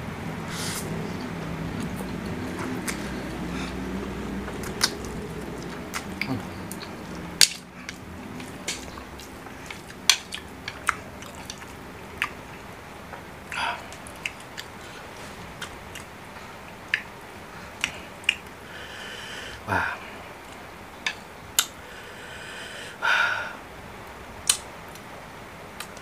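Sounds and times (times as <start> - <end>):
chewing noodles with mouth smacks: 1.1 - 12.6, 13.4 - 18.5.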